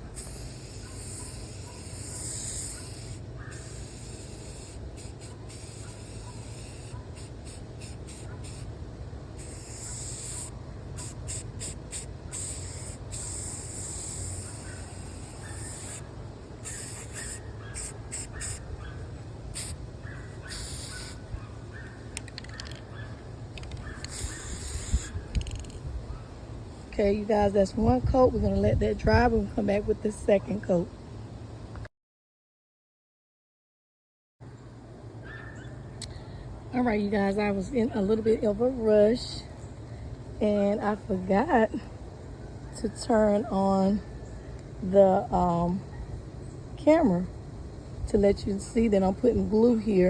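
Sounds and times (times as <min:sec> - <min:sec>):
spray paint can hissing: 0:00.0 - 0:08.7, 0:09.4 - 0:18.6, 0:19.5 - 0:19.8, 0:20.5 - 0:21.3, 0:23.6 - 0:25.8.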